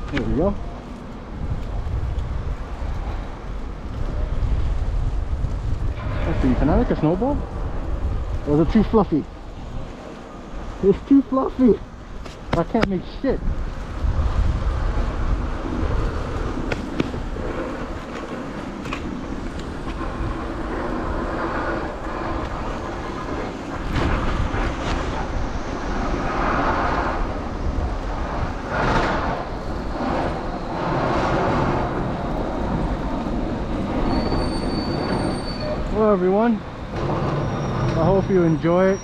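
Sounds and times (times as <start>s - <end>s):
traffic passing on a street: 0.0s - 39.0s
thin high-pitched squeal: 34.0s - 35.9s, 37.4s - 39.0s.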